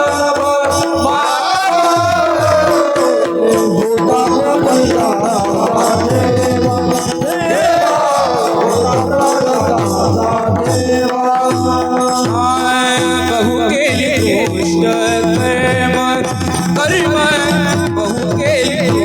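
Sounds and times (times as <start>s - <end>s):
drum rapid strokes: 0.0s - 19.0s
hand cymbals jingling: 0.0s - 19.0s
harmonium held tones: 0.0s - 19.0s
person singing: 0.0s - 19.0s.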